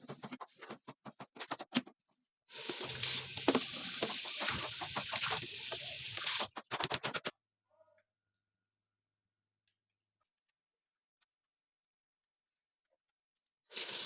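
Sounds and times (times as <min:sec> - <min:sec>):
water running: 0:02.5 - 0:06.5, 0:13.7 - 0:14.0.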